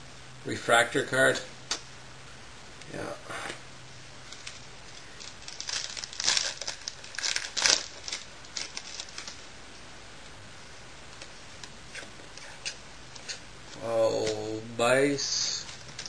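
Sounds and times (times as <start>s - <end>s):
card pack wrapper crinkling and tearing: 4.3s - 9.4s.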